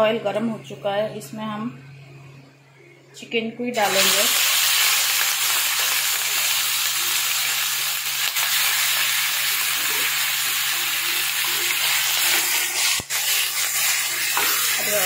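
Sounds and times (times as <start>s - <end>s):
chicken sizzling in oil: 3.8s - 15.0s.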